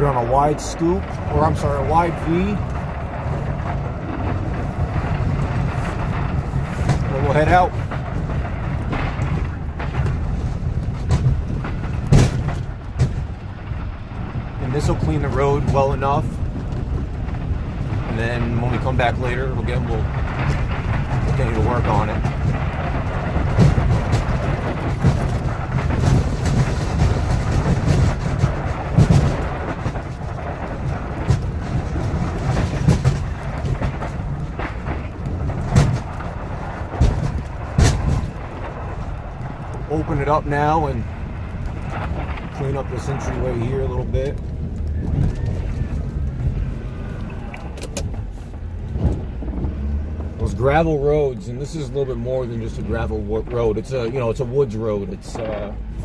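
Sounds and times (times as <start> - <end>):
diesel truck engine running: 0.0 - 56.0
snow plow knocking and banging: 0.0 - 56.0
loud thump: 4.2 - 13.4.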